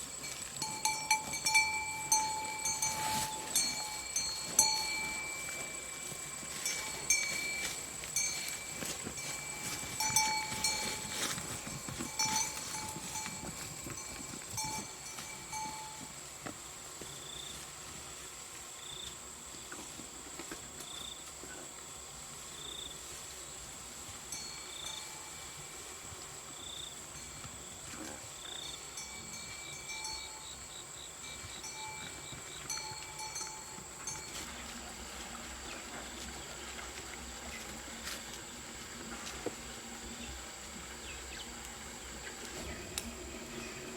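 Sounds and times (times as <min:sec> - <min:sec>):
high-pitched insect drone: 0:00.0 - 0:16.1
livestock bell clanking: 0:00.1 - 0:16.2, 0:24.3 - 0:25.9, 0:27.0 - 0:35.6.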